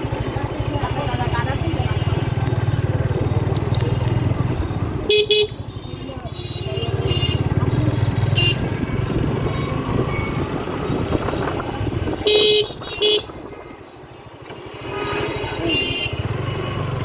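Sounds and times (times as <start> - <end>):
motorcycle engine and road rumble: 0.0 - 17.0
loud horn honks: 5.1 - 8.7, 12.2 - 13.3.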